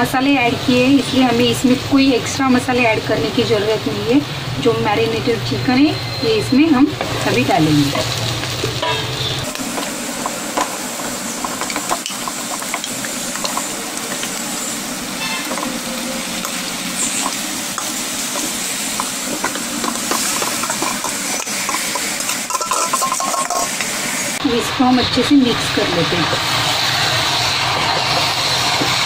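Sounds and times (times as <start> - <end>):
chicken sizzling in hot oil: 0.0 - 29.0
spoon stirring and scraping pan: 16.4 - 23.9.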